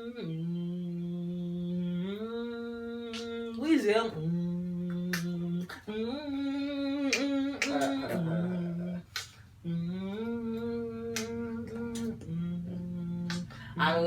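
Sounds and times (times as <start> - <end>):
man humming a beat: 0.0 - 13.8
finger snaps: 3.1 - 3.4, 4.9 - 5.8, 7.1 - 8.1, 9.1 - 9.4, 11.1 - 12.3, 13.2 - 13.5.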